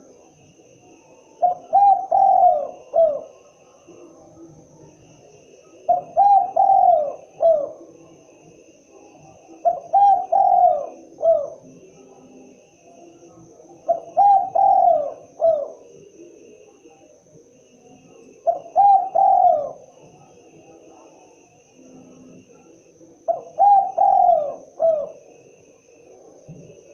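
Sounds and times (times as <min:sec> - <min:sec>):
dove cooing: 0:00.9 - 0:04.2, 0:05.6 - 0:08.1, 0:09.2 - 0:11.9, 0:13.7 - 0:16.4, 0:18.2 - 0:20.2, 0:22.0 - 0:25.5.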